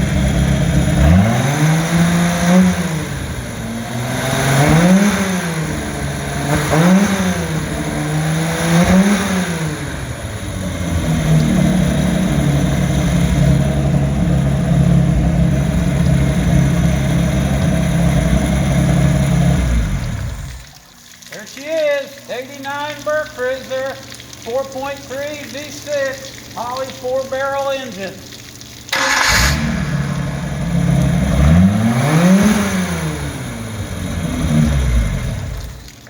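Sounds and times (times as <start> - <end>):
boat engine revving: 0.0 - 20.7, 28.9 - 36.0.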